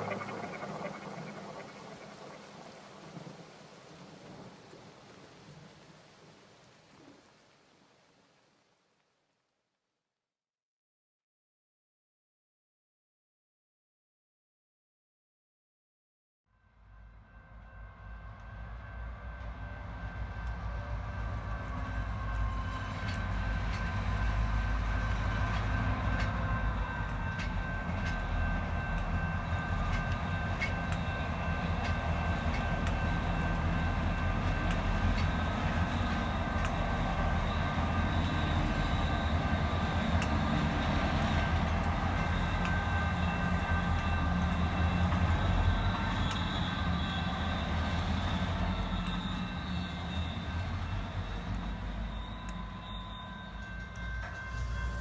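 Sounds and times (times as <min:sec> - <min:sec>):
diesel locomotive rumble: 0:17.0 - 0:55.0
high whining tones: 0:19.2 - 0:55.0.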